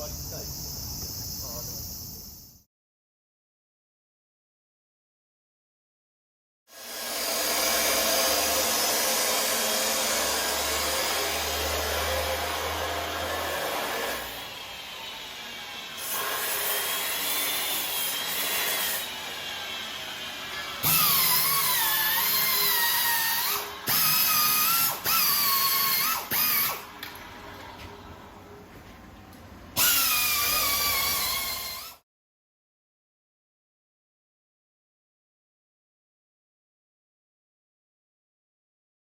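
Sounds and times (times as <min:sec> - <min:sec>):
power tool on metal: 0:06.7 - 0:26.9, 0:29.8 - 0:32.0.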